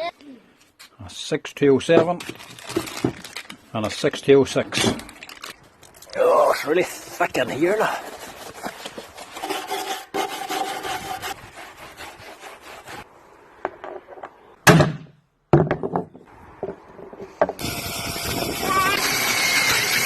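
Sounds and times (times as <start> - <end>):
grease scraping by hand: 5.0 - 13.1.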